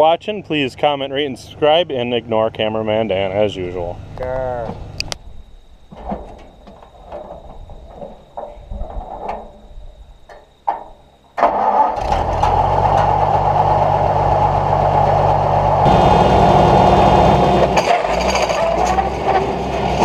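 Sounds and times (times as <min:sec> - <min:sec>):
engine starting and running: 0:11.4 - 0:20.0.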